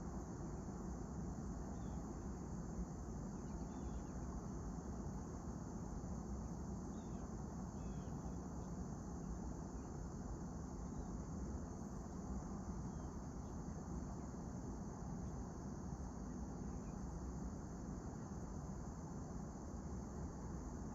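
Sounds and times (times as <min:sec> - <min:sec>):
insect chorus: 0:00.0 - 0:20.9
faint bird chirps: 0:01.7 - 0:02.1, 0:03.4 - 0:04.2, 0:06.9 - 0:08.2, 0:16.3 - 0:17.1.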